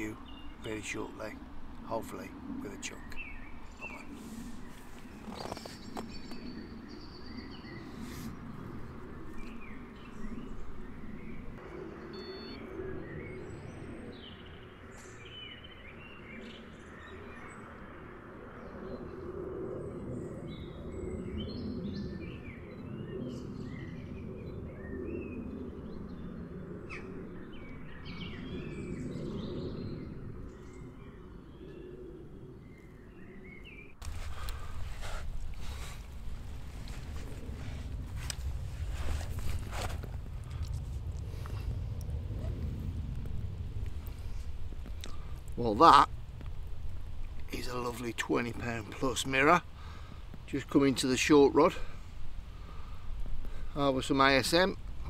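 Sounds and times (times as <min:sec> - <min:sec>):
birds chirping: 0:00.0 - 0:55.0
low outdoor rumble: 0:17.4 - 0:55.0.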